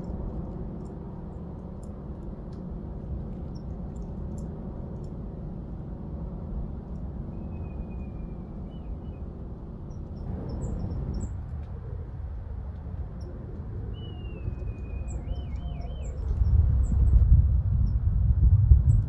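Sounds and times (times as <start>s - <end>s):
steady low rumble: 0.0s - 19.0s
small birds chirping: 13.2s - 17.2s
thin drawn-out bird call: 13.9s - 16.4s.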